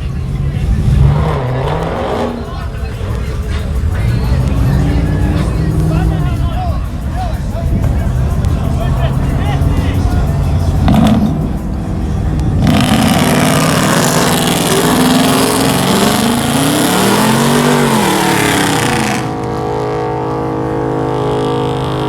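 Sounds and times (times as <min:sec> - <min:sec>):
engine revving: 0:00.0 - 0:22.0
harsh exhaust rush: 0:00.0 - 0:22.0.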